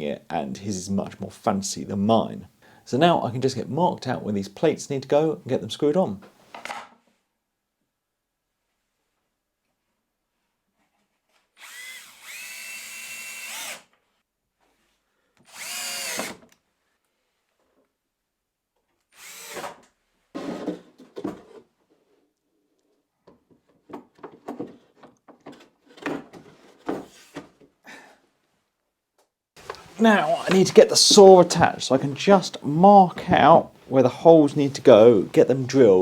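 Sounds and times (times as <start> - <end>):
power drill driving screws: 11.6 - 13.9, 15.4 - 16.5, 19.1 - 19.8, 29.7 - 30.7.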